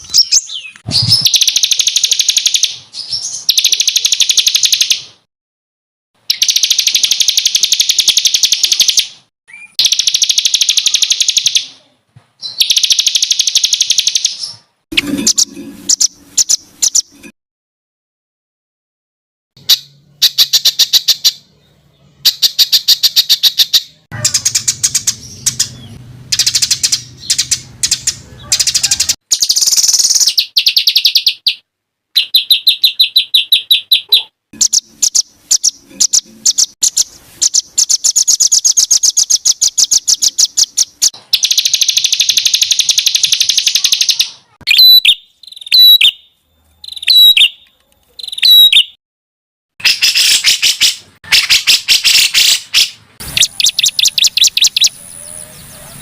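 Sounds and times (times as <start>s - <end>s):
sharp falling bird calls: 0.0s - 5.2s, 22.2s - 31.6s, 49.8s - 56.0s
songbirds trilling and chattering: 19.6s - 31.6s, 32.2s - 49.0s, 49.9s - 56.0s.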